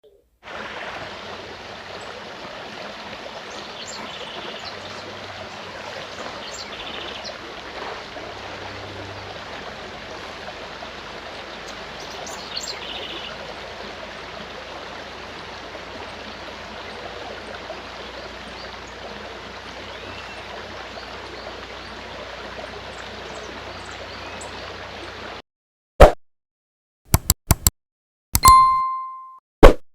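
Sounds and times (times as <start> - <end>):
stream running: 0.4 - 25.4
loud sharp click: 27.1 - 27.7.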